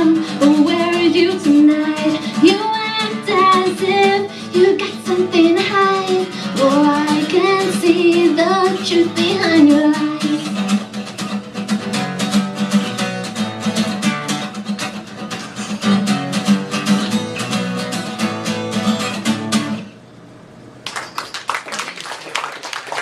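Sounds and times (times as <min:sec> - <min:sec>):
acoustic guitar strumming: 0:00.0 - 0:20.1
audience applause: 0:20.8 - 0:23.0.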